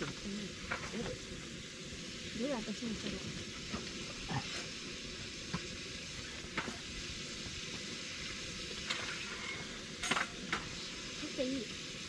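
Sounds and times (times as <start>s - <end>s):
campfire crackling: 0.0s - 12.0s
fire pops: 5.4s - 10.9s.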